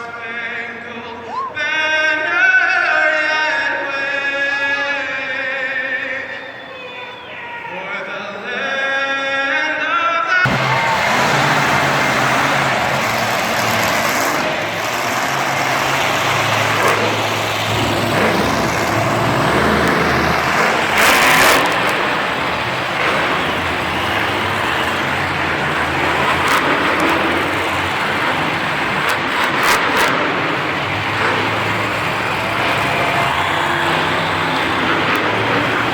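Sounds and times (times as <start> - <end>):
monster truck engines revving: 10.4 - 35.9.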